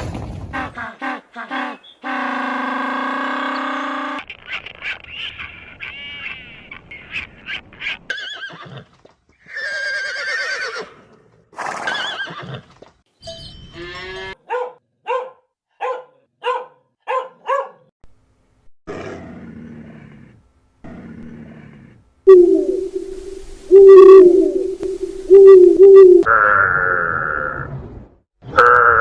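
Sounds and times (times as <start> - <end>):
horse whinnying: 9.5 - 11.0, 11.6 - 12.7.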